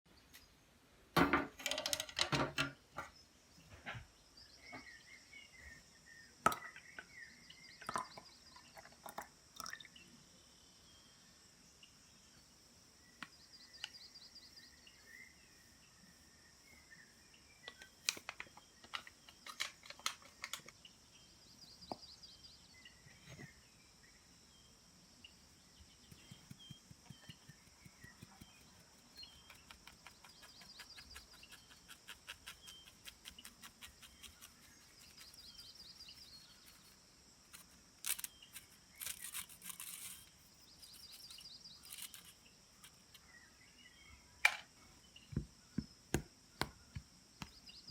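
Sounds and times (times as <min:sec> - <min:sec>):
clicks and knocks of objects: 0:01.2 - 0:03.2, 0:17.8 - 0:20.8
insects droning and trilling: 0:02.9 - 0:47.9.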